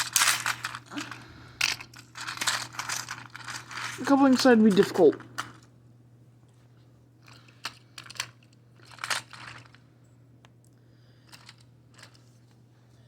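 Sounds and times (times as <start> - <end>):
plastic toy rustling scrape: 0.0 - 5.1.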